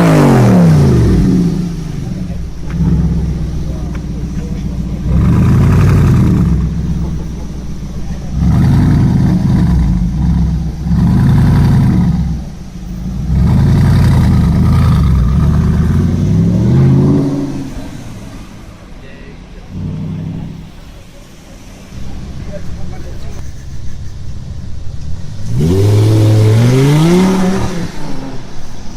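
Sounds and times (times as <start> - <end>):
car engine revving: 0.0 - 28.9.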